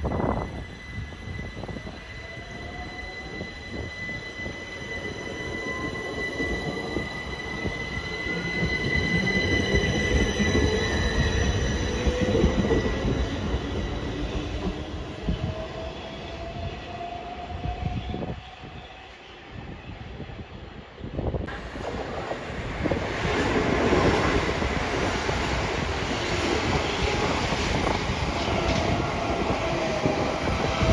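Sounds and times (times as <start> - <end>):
train rumbling on rails: 0.0 - 30.9
high-pitched wheel squeal: 0.4 - 19.0.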